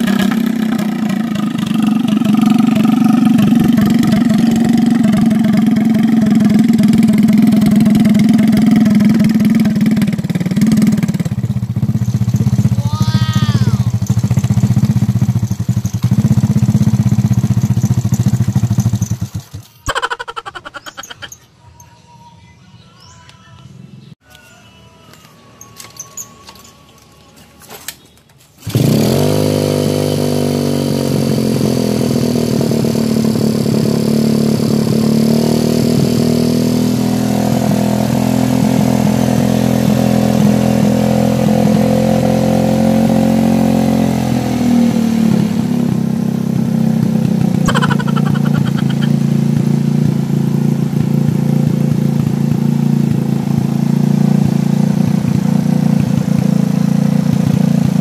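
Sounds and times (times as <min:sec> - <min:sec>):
motorcycle engine idling: 0:00.0 - 0:19.7, 0:45.7 - 0:58.0.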